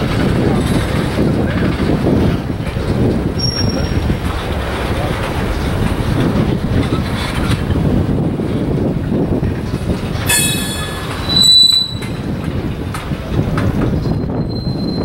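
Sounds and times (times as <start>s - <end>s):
rumble of wheels on rail: 0.0s - 15.0s
wheel squeal: 3.3s - 5.0s, 10.2s - 12.4s, 13.8s - 15.0s.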